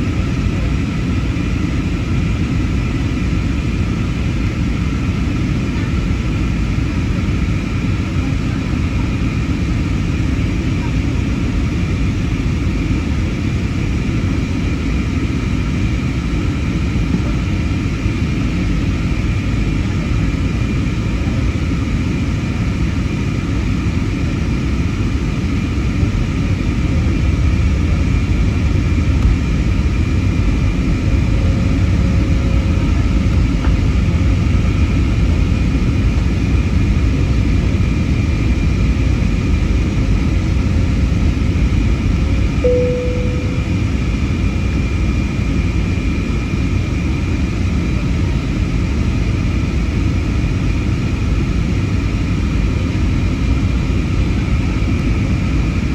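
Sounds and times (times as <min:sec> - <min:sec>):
airplane cabin engine rumble: 0:00.0 - 0:44.2
steady high tones: 0:42.6 - 0:44.0.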